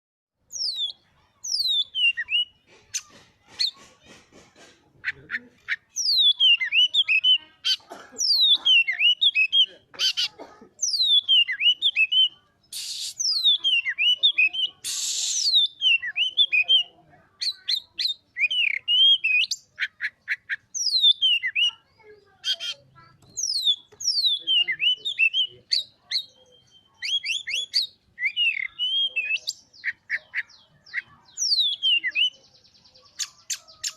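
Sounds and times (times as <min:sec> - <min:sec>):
songbird singing varied song: 0:00.4 - 0:04.2, 0:05.1 - 0:07.4, 0:10.8 - 0:33.9
harsh rasping bird notes: 0:12.0 - 0:21.8.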